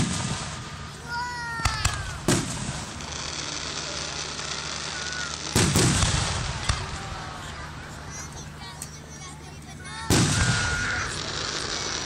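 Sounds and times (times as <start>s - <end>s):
firework hiss: 0.0s - 8.5s, 10.0s - 12.0s
firework crack: 0.0s - 12.0s.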